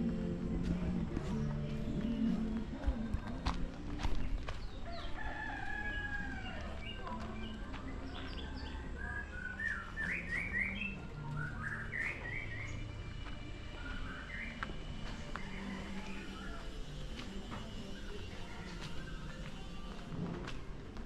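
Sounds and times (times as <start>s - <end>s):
small birds chirping: 4.2s - 20.0s
rooster crowing: 4.8s - 6.8s, 15.2s - 16.8s.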